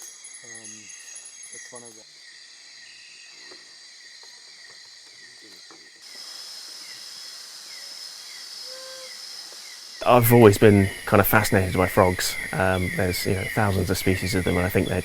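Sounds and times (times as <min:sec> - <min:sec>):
insects buzzing and trilling: 0:00.0 - 0:15.0
short falling insect chirp: 0:02.8 - 0:10.1.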